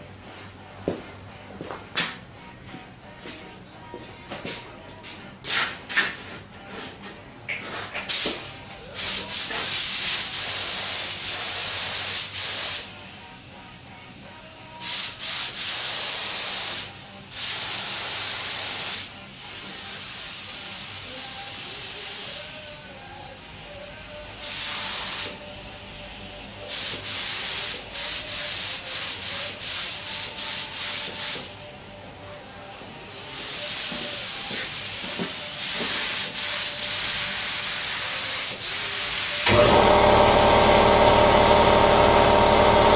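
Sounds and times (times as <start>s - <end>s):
spray-paint gun hissing: 9.0s - 12.9s, 14.8s - 22.5s, 24.5s - 25.6s, 26.7s - 31.5s, 33.3s - 42.9s.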